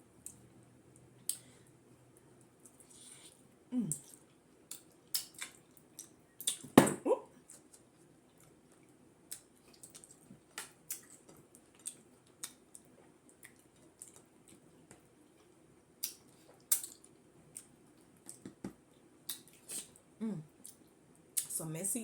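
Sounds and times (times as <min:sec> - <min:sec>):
person humming: 0:03.7 - 0:04.0, 0:20.2 - 0:20.5
wet mouth clicks and chewing: 0:03.9 - 0:06.7, 0:07.5 - 0:18.6.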